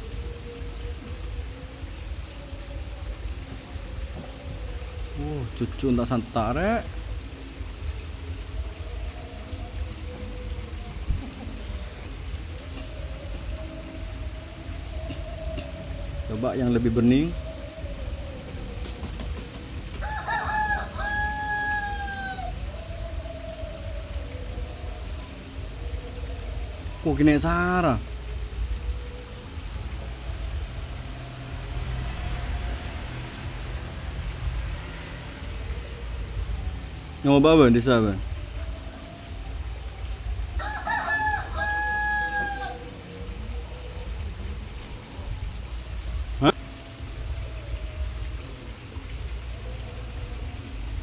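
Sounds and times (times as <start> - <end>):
rooster crowing: 19.9 - 24.6, 40.5 - 43.8.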